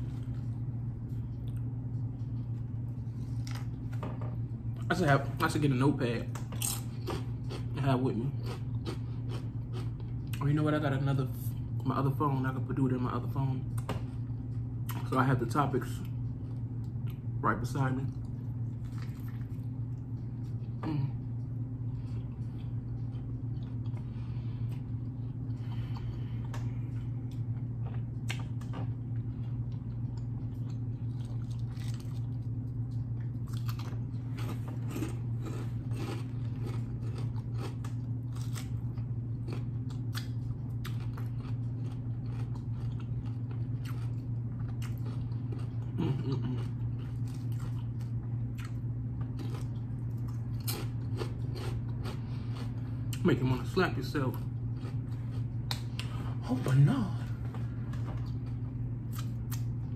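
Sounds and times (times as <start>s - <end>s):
low hum: 0.0s - 59.9s
crunchy wet chewing: 6.3s - 10.6s, 18.0s - 56.3s, 57.5s - 59.9s.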